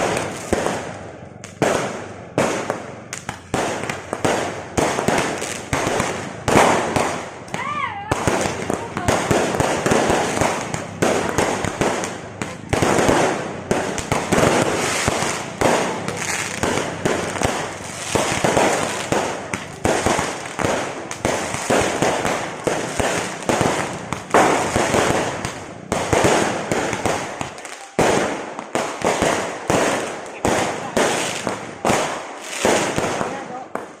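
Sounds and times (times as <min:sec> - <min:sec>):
fireworks bangs and crackling: 0:00.0 - 0:34.0.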